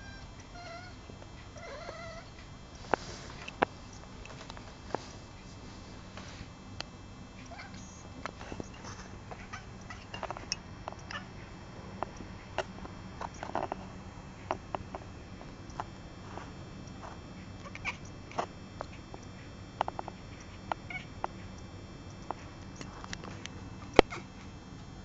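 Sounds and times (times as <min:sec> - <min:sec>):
kittens squeaking and mewing: 0:01.6 - 0:04.4, 0:17.6 - 0:19.0.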